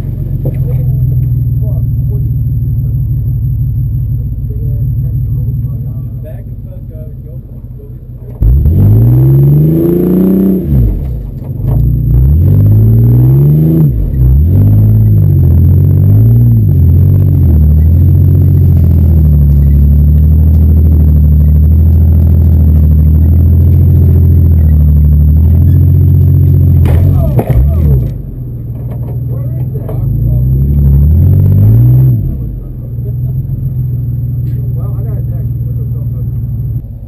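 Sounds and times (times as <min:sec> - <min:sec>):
car engine revving hard: 0:08.4 - 0:28.3, 0:29.9 - 0:34.0.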